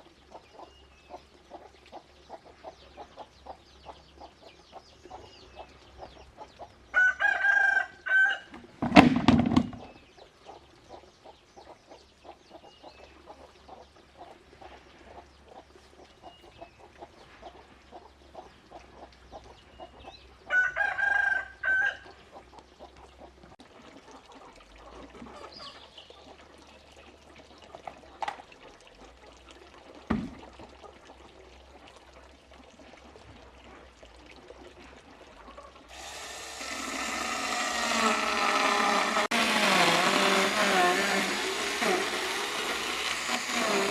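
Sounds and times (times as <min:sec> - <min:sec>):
rooster crowing: 0:07.0 - 0:08.5, 0:20.5 - 0:22.0
loud steady mechanical noise: 0:35.9 - 0:43.9.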